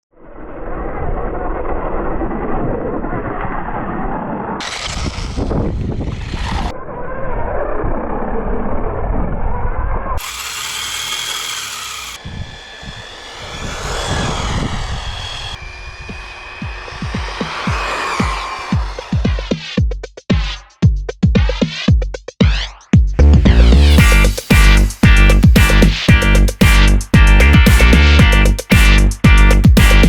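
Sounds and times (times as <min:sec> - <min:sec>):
electric motor whine: 0:04.6 - 0:06.7, 0:10.2 - 0:19.5
tyres on gravel: 0:04.6 - 0:06.7.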